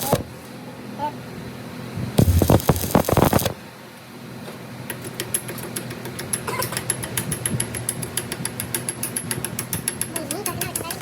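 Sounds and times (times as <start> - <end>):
machine humming: 2.2 - 3.6.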